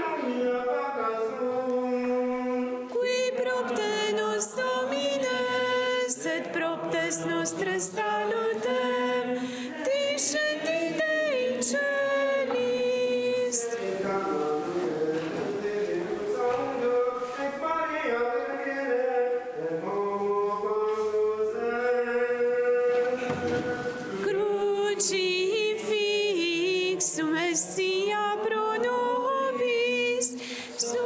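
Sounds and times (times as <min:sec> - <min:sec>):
choir singing chant: 0:00.0 - 0:31.0.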